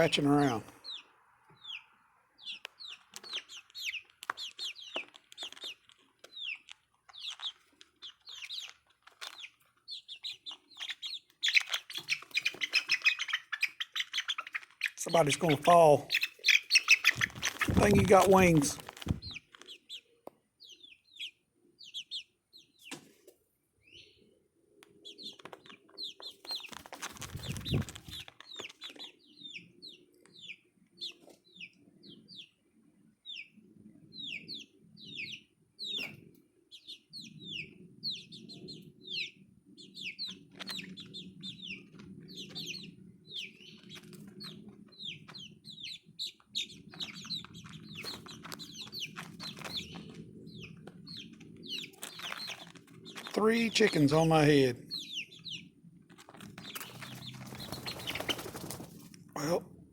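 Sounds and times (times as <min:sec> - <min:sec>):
young chickens peeping: 0:00.0 - 0:59.9
rustling: 0:16.8 - 0:19.8, 0:26.4 - 0:28.8, 0:47.0 - 0:53.4.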